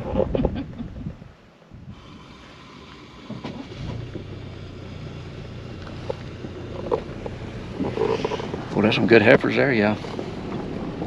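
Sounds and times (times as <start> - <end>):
car engine idling: 1.8 - 11.0.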